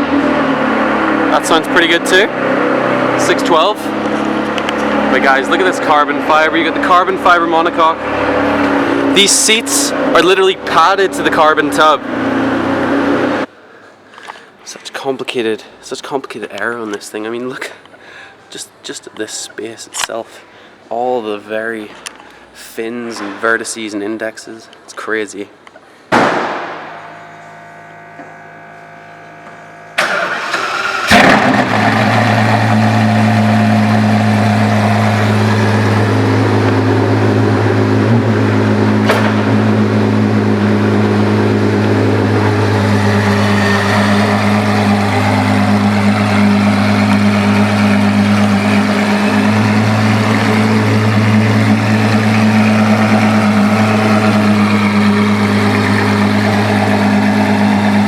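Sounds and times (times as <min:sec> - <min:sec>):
car engine idling: 0:00.0 - 0:13.5, 0:26.8 - 0:58.0
thump: 0:26.1 - 0:27.0, 0:39.0 - 0:39.5.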